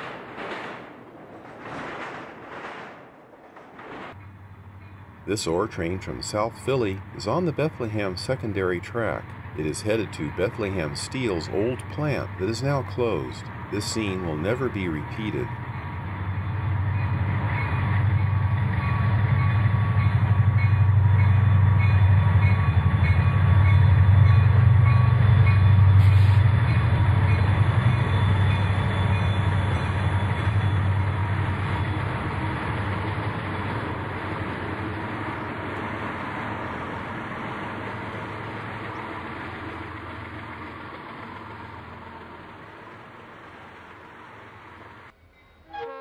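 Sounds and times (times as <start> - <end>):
train cars rolling past: 0.0 - 46.0
diesel locomotive engines droning: 4.1 - 46.0.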